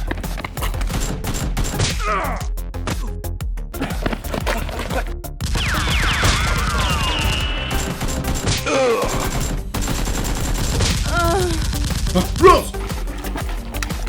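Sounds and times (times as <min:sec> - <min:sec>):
music with bass beat: 0:00.0 - 0:08.4, 0:09.3 - 0:14.0
rapid gunfire bursts: 0:05.4 - 0:13.3
whistle-like glides: 0:05.7 - 0:07.8.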